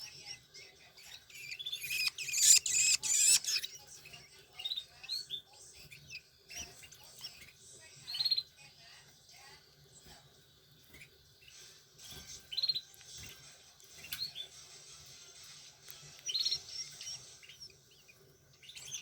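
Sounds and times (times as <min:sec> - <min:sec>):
nestlings begging with squeaky calls: 0:00.1 - 0:08.6, 0:10.8 - 0:13.3, 0:16.1 - 0:19.0.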